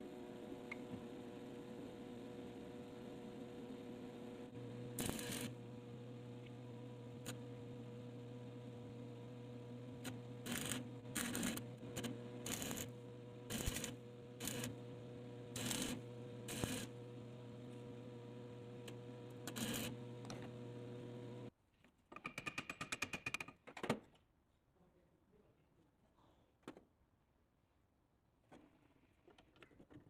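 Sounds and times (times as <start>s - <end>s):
steady electric hum: 0.0s - 21.5s.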